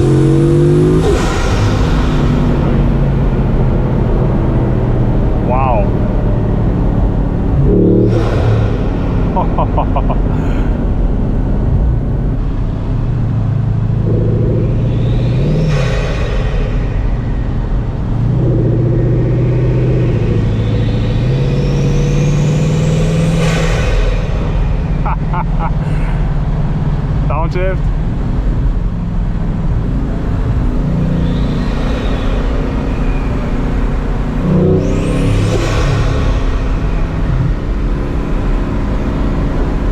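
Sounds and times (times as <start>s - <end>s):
car engine running: 0.0s - 16.2s
road noise: 0.0s - 39.9s.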